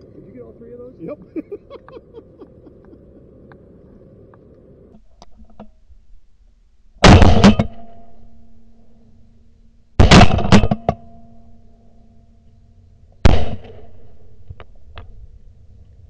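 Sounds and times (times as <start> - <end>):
shotgun blasts with echo: 7.0 - 8.0, 10.0 - 11.0, 13.2 - 14.2.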